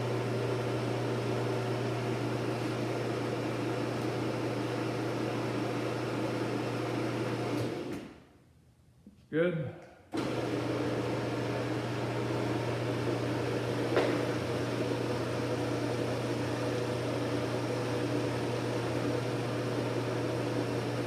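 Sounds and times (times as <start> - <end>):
garage door opener motor hum: 0.0 - 8.2, 10.2 - 21.0.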